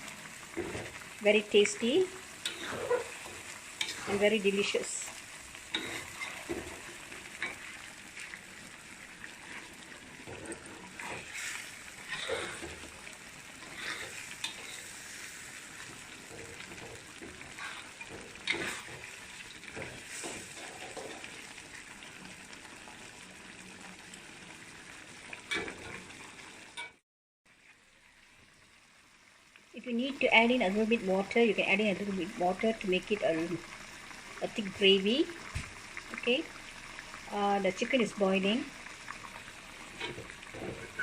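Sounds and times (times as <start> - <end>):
curry sizzling in a pan: 0.0 - 41.0
spatula scraping a pan: 2.4 - 4.4, 5.7 - 7.7, 9.4 - 12.9, 13.6 - 21.3.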